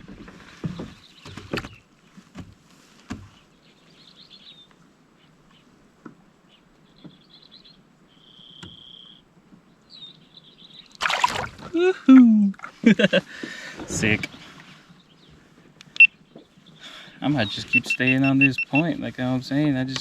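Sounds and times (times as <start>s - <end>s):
birds chirping: 12.6s - 19.1s.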